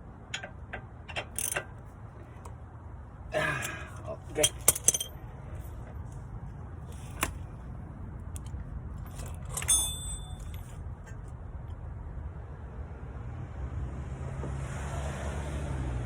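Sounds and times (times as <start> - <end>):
metal tools clinking: 0.2 - 1.8, 3.5 - 6.2, 8.4 - 10.8
ringing metallic clatter: 0.2 - 1.9, 4.3 - 5.9, 9.0 - 10.8.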